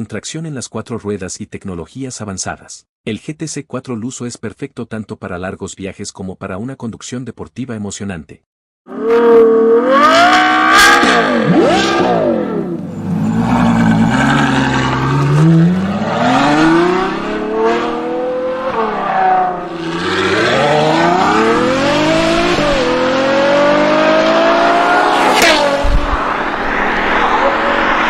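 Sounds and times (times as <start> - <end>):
car engine accelerating hard: 8.9 - 28.0.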